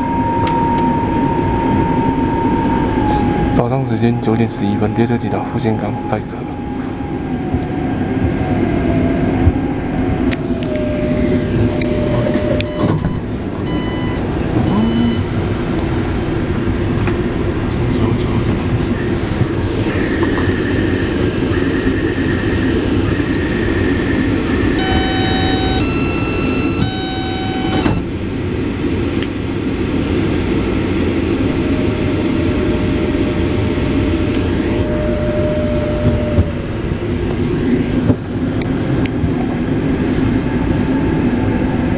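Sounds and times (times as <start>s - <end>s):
train standing rumble: 0.1s - 41.9s
repeated electronic beeps: 11.7s - 15.3s, 24.8s - 28.1s
electronic chime: 11.8s - 15.3s, 24.8s - 28.1s.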